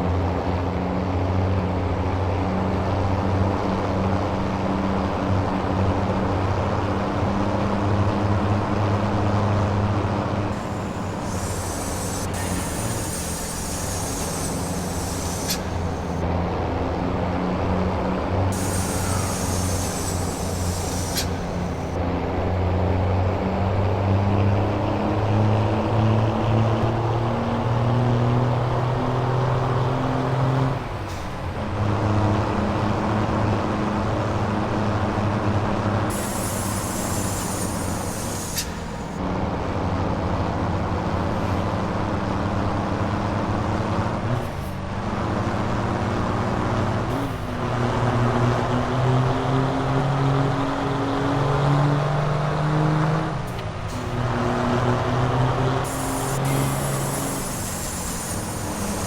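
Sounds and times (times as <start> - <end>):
diesel truck engine under load: 0.0 - 59.0
hiss of air: 7.7 - 16.2, 18.5 - 22.0, 36.0 - 39.2, 55.8 - 59.0.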